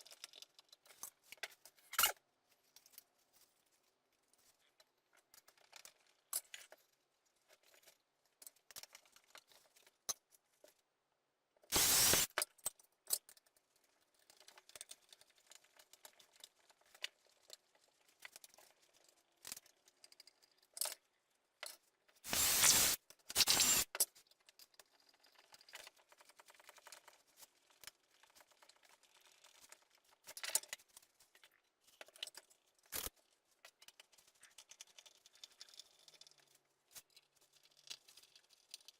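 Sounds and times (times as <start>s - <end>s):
short harsh noise bursts: 11.7s - 12.3s, 22.3s - 23.9s
wooden parts clicking and scraping: 22.3s - 23.8s.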